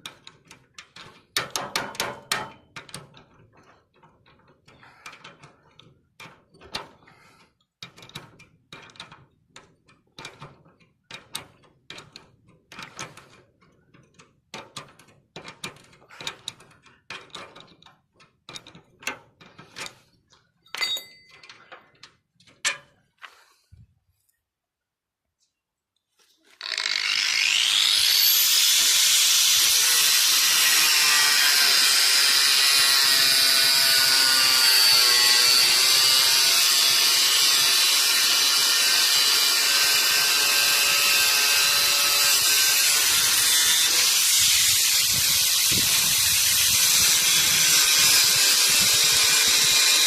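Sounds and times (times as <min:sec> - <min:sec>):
metal parts knocking and clanking: 0:13.9 - 0:20.0, 0:20.6 - 0:22.9
short metallic ring: 0:20.7 - 0:21.4.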